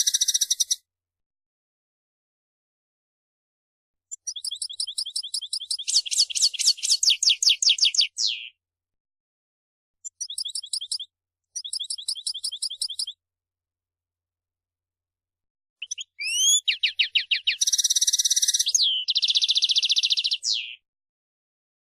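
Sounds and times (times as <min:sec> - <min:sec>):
bird singing trills: 0:00.0 - 0:00.8, 0:04.1 - 0:08.6, 0:10.0 - 0:13.2, 0:15.8 - 0:20.8.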